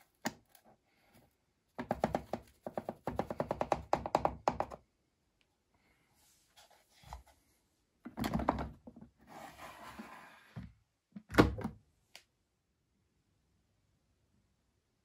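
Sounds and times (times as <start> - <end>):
scraping slide: 9.2 - 10.6.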